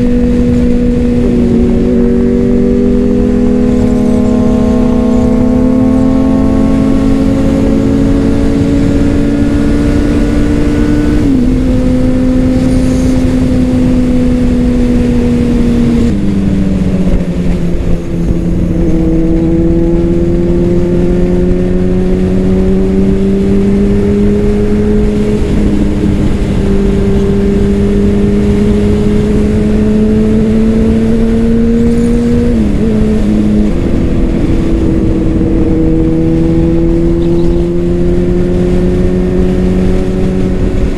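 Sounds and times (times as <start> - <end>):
motorcycle engine shifting gears: 0.0 - 40.9.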